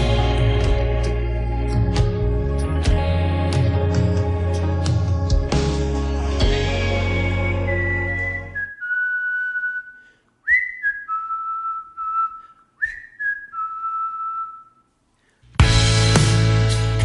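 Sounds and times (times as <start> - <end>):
person whistling a slow tune: 6.8 - 14.9.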